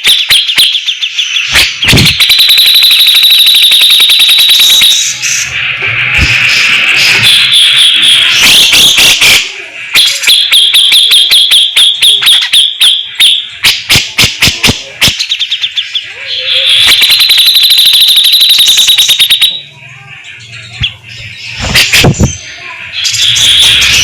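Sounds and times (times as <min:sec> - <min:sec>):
bird giving harsh rattling calls: 0:06.4 - 0:19.5, 0:20.4 - 0:24.0.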